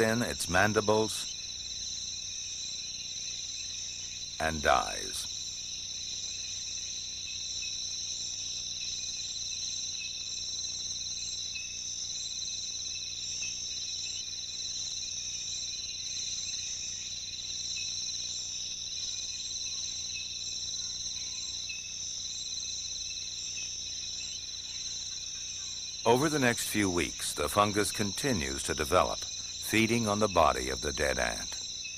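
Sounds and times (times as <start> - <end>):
insects trilling: 0.0 - 31.9
faint low hum: 4.4 - 5.3, 26.1 - 31.7.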